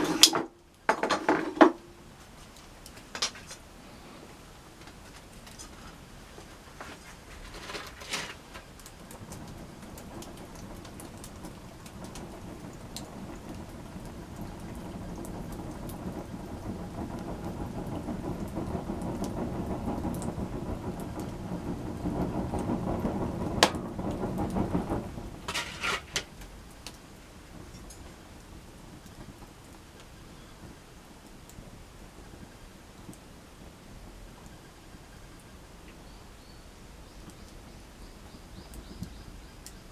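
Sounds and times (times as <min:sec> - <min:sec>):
campfire crackling and popping: 0:04.5 - 0:34.6.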